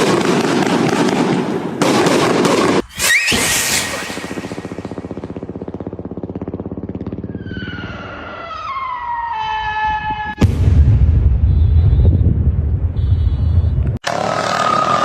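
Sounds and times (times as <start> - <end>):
firework buzzing pulse: 2.6 - 7.4
firework bang: 10.3 - 12.8.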